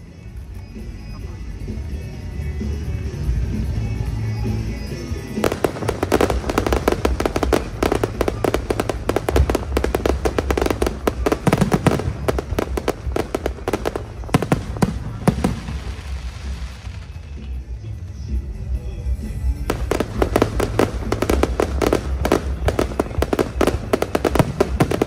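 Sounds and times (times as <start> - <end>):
music: 0.0 - 25.0
fireworks bangs and crackles: 4.5 - 18.1, 19.4 - 25.0.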